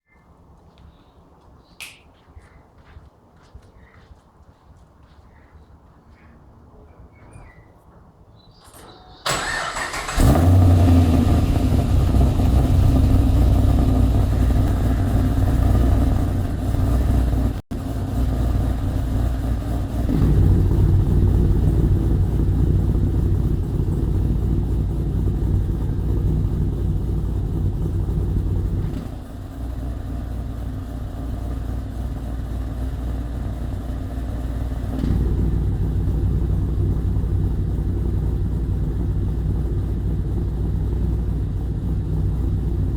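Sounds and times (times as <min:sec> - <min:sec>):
car engine starting and idling: 0:08.6 - 0:42.9.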